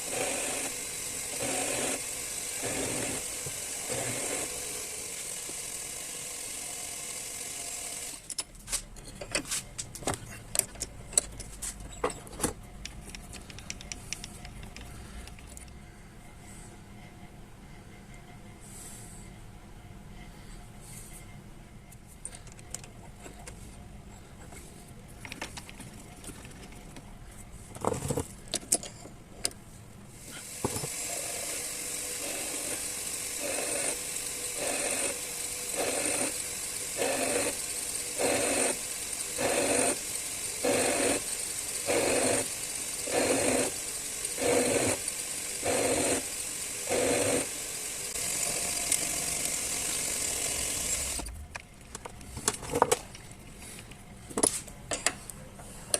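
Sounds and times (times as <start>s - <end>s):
metal lathe running: 0.0s - 8.2s, 30.4s - 51.2s
short cutting bursts: 0.0s - 8.2s, 30.4s - 51.3s.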